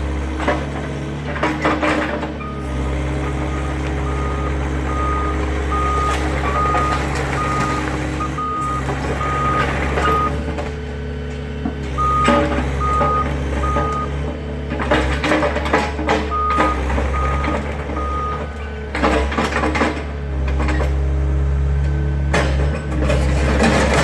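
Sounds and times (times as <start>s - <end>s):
diesel engine drone: 0.0s - 24.0s
backup alarm beeping: 2.4s - 10.5s, 12.0s - 14.2s, 16.3s - 18.5s.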